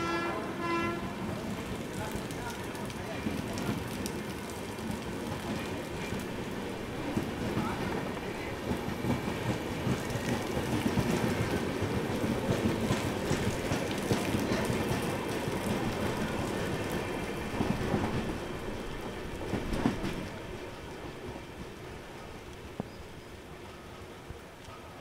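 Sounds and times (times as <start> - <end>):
train coaches rolling past: 0.0 - 25.0
heavy rain falling: 1.2 - 9.2, 9.8 - 19.4.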